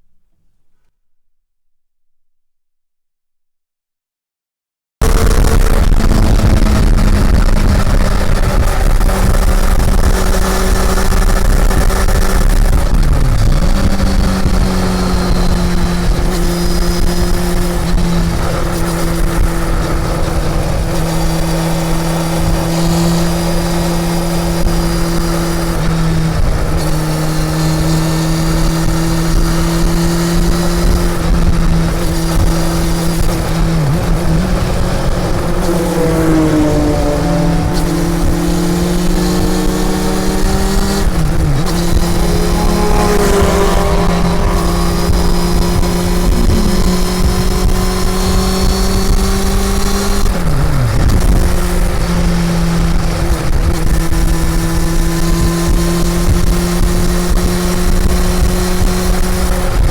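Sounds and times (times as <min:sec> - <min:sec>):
motorcycle engine running: 0:05.0 - 0:59.9
low wind rumble: 0:31.2 - 0:54.2.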